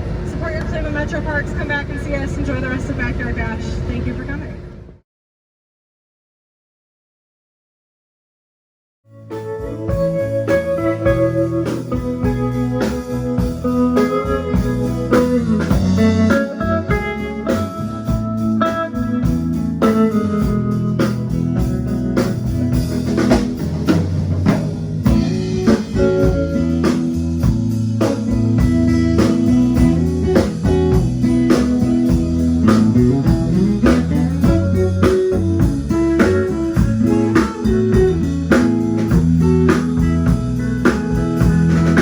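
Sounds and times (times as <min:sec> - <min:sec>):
band playing blues music: 0:09.2 - 0:42.0.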